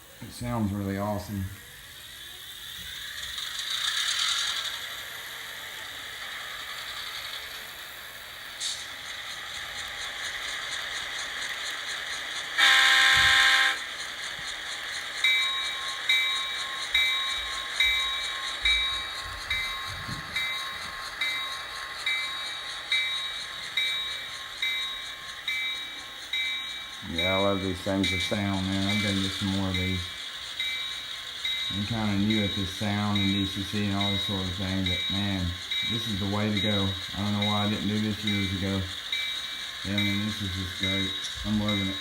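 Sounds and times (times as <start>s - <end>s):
model locomotive engine hiss: 0.0s - 42.0s
locomotive bell ringing: 9.5s - 42.0s
locomotive horn blast: 12.6s - 13.8s.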